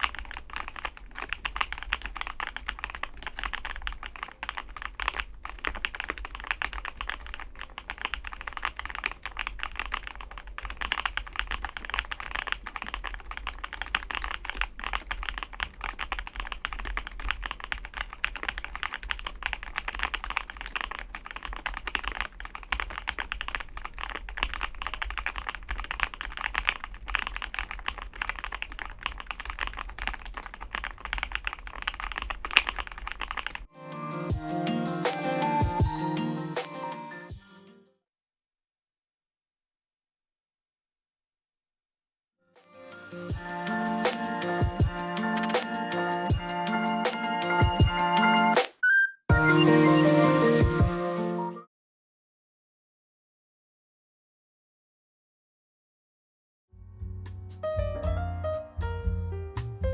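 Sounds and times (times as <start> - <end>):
mechanical keyboard typing: 0.0 - 33.7, 34.6 - 36.9, 43.3 - 49.0.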